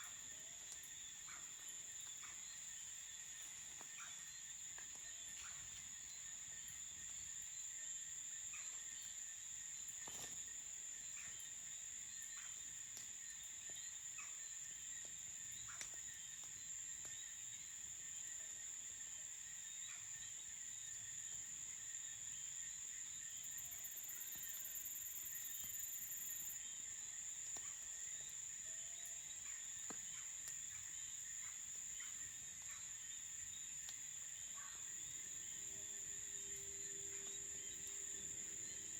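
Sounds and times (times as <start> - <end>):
crickets trilling: 0.0 - 38.9
pulsing insect chirps: 23.2 - 26.8.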